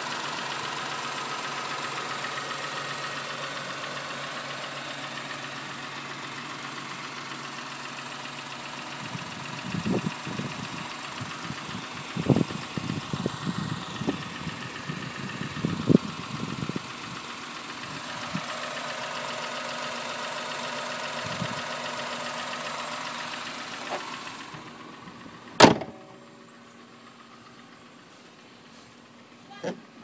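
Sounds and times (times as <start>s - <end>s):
car engine idling: 0.0s - 30.0s
sharp bang: 25.6s - 26.0s.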